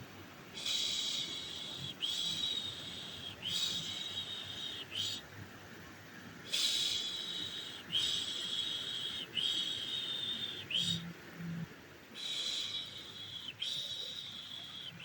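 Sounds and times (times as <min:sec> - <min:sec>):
breaths: 0:12.2 - 0:14.4.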